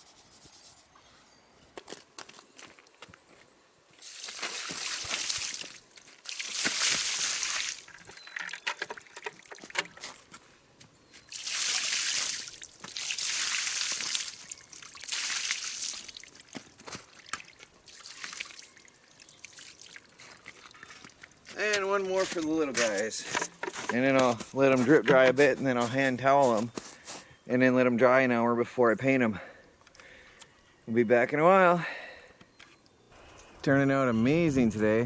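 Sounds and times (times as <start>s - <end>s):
water splashing over metal: 4.0s - 8.1s.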